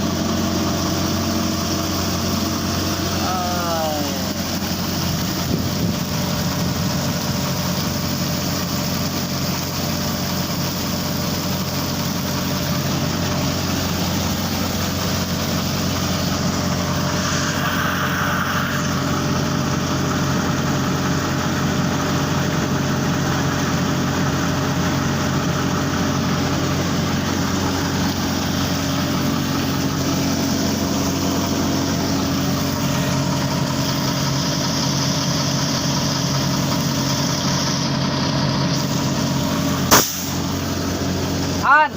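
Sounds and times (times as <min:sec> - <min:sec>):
diesel engine droning: 0:00.0 - 0:41.9
brief high-pitched noise: 0:15.6 - 0:20.4.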